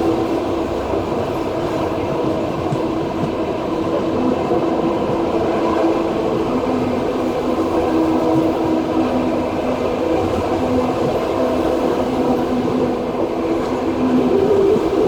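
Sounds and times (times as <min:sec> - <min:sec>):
train wheels rumbling on rail: 0:00.0 - 0:15.0
steady humming tones: 0:12.0 - 0:15.0.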